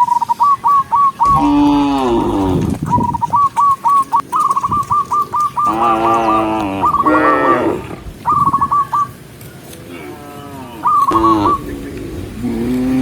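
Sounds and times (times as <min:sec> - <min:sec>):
short high chirping calls: 0:00.0 - 0:01.8, 0:02.8 - 0:07.2, 0:08.2 - 0:09.2, 0:10.8 - 0:11.8
cows mooing: 0:01.2 - 0:02.9, 0:05.6 - 0:08.2, 0:09.9 - 0:13.0.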